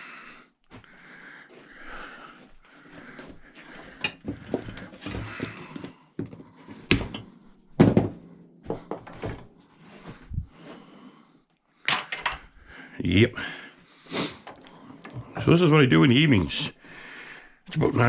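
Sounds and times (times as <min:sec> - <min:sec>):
scrap metal clattering into buckets: 0:11.9 - 0:12.5.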